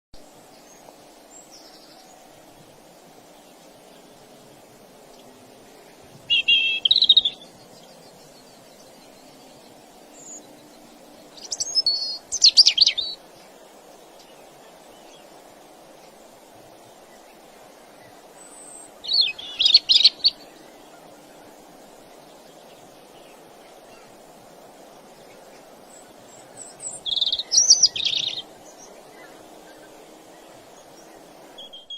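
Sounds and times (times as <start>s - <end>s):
songbird chirping: 0.2s - 31.9s
steady low hiss: 0.2s - 31.9s
faint high chirps: 25.2s - 31.9s.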